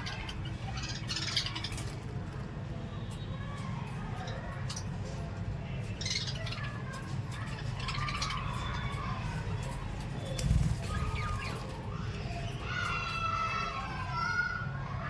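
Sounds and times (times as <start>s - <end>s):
small parrots chirping: 0.0s - 1.9s.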